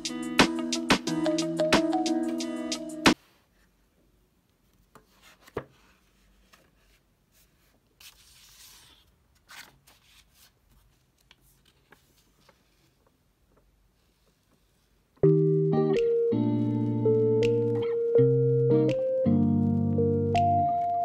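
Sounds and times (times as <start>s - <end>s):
paper rustling: 4.8s - 14.9s.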